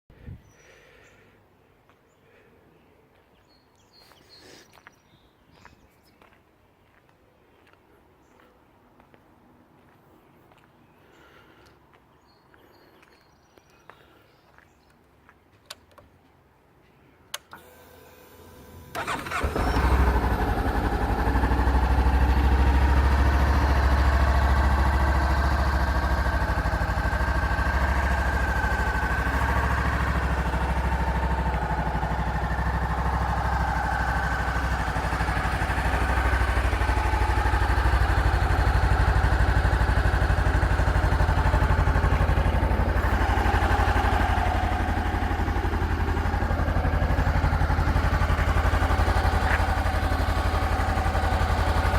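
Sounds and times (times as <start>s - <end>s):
motorcycle engine starting and idling: 17.3s - 51.9s.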